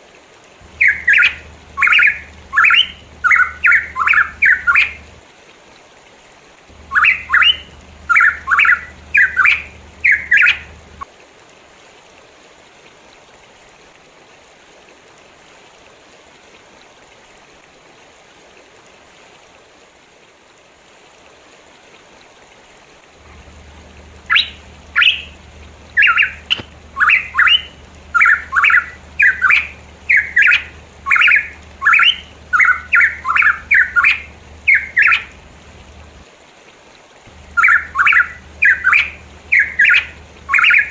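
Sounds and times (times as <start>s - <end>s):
faint steady hiss: 0.0s - 40.9s
bird whistled calls: 0.7s - 5.1s, 6.8s - 10.8s, 23.4s - 35.4s, 37.4s - 40.9s.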